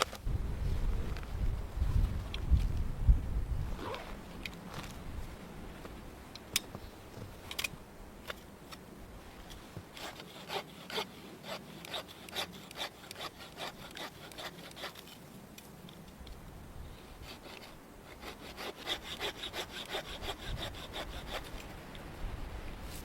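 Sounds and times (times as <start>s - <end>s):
hand saw cutting wood: 9.9s - 15.2s, 17.2s - 21.7s.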